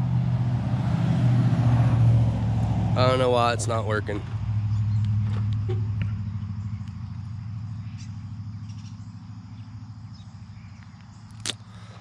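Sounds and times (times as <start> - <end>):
car engine running: 1.6 - 10.8.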